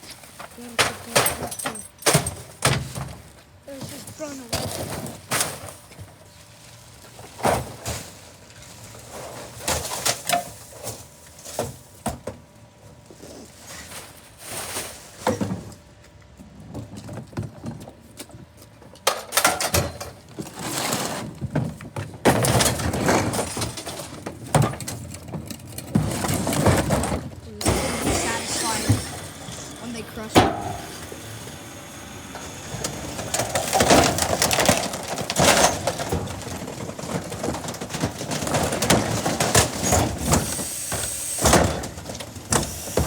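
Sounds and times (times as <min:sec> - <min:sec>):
trash thrown into garbage truck: 0:04.0 - 0:06.2, 0:07.1 - 0:12.4, 0:13.7 - 0:15.8, 0:19.1 - 0:43.0.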